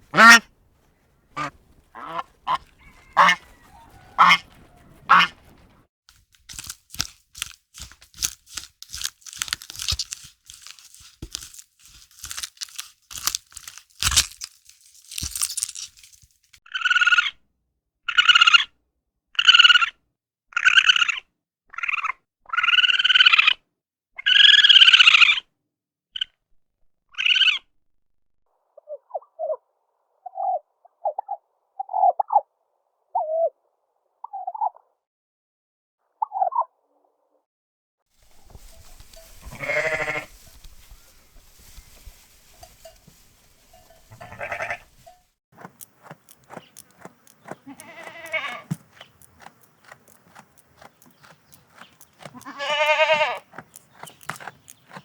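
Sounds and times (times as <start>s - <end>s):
waterfowl calling: 0.0s - 5.8s.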